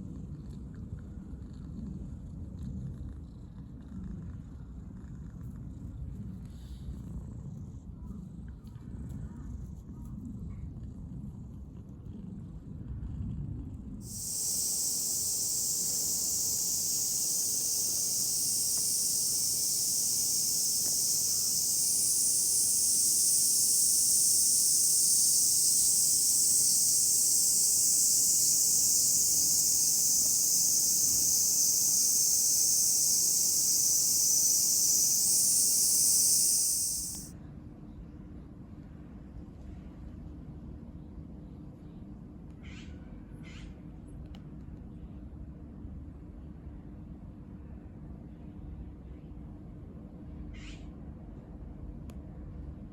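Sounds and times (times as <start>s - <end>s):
cicadas chorus: 14.1s - 37.3s.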